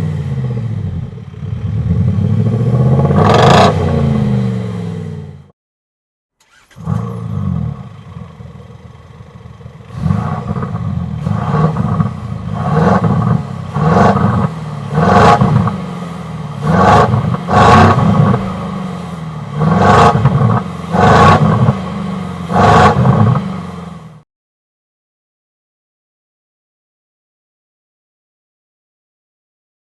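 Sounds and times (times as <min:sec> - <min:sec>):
synthetic exhaust note revving: 0:00.0 - 0:05.4, 0:09.9 - 0:24.2
diesel engine: 0:00.0 - 0:05.5, 0:06.4 - 0:24.2.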